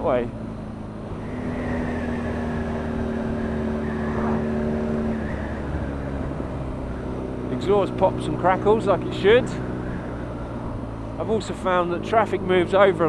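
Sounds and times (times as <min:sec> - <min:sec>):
wind rush: 0:01.1 - 0:06.9.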